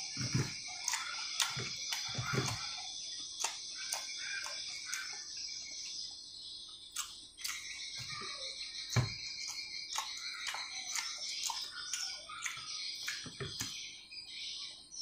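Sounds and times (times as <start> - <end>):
man chewing with mouth clicks: 0.7 - 5.7, 6.9 - 7.9, 9.4 - 13.3.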